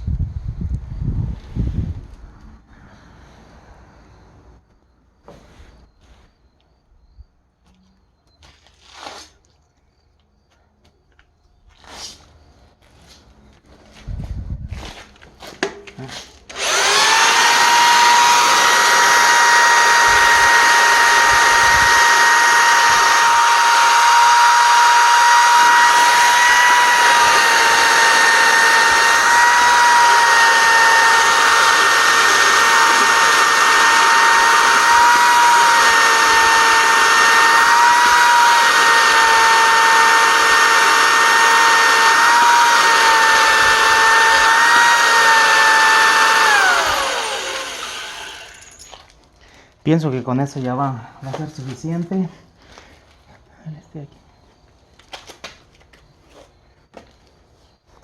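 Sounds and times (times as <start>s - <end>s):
electric drill whining: 16.5s - 49.1s.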